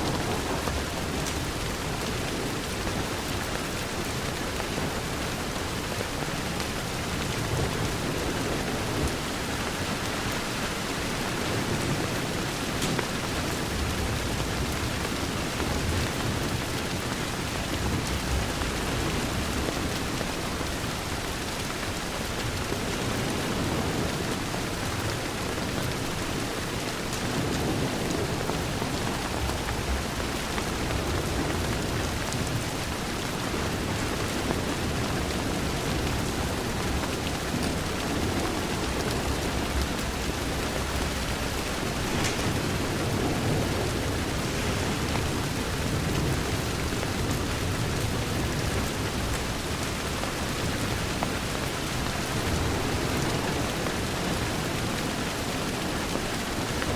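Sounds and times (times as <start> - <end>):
rain on a window pane: 0.0 - 56.9.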